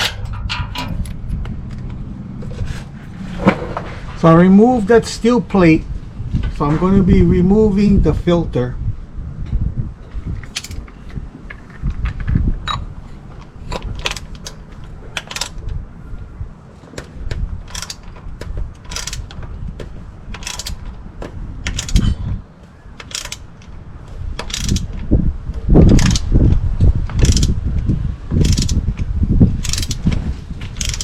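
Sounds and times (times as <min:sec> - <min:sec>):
low rumble of handling noise: 0:00.0 - 0:31.0
ratchet clicking: 0:10.5 - 0:10.8, 0:13.8 - 0:14.6, 0:15.2 - 0:15.6, 0:17.6 - 0:18.2, 0:18.8 - 0:19.4, 0:20.3 - 0:20.9, 0:21.6 - 0:22.1, 0:23.0 - 0:23.7, 0:24.4 - 0:25.0, 0:25.9 - 0:26.3, 0:27.2 - 0:27.6, 0:28.4 - 0:31.0.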